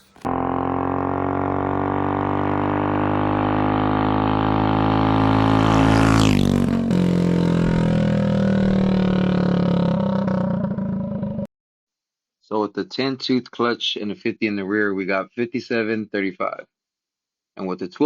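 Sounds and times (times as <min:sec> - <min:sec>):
small engine running at high revs: 0:00.0 - 0:11.4.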